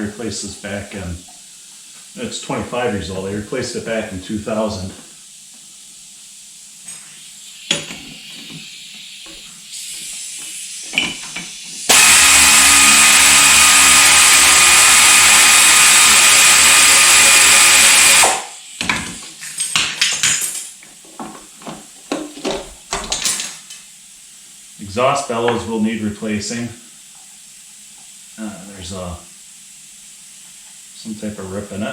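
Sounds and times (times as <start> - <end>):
power tool motor running: 11.9 - 18.5.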